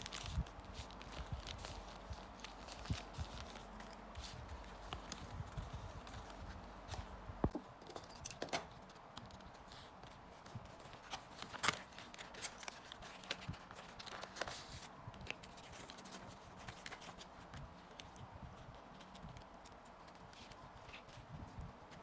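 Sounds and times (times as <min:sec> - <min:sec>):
plastic packaging being handled: 0:00.0 - 0:07.6, 0:08.7 - 0:18.1.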